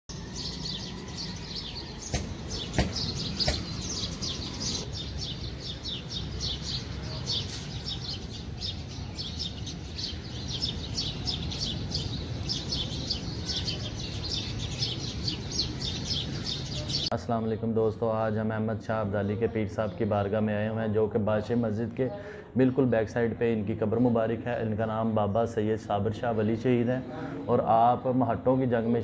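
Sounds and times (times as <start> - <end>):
small birds chirping: 0.1 - 29.0
sharp knocks: 2.0 - 3.9.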